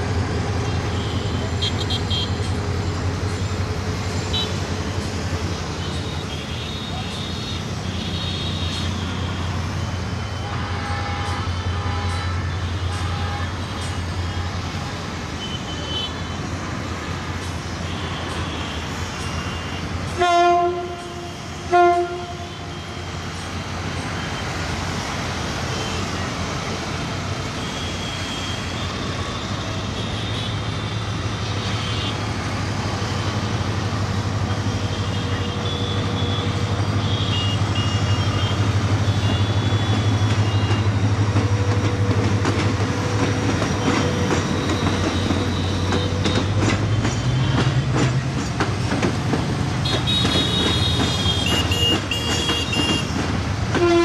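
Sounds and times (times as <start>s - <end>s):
running train rumble: 0.0s - 54.0s
locomotive horn: 10.3s - 16.2s, 17.9s - 23.1s, 34.6s - 41.1s, 49.8s - 54.0s.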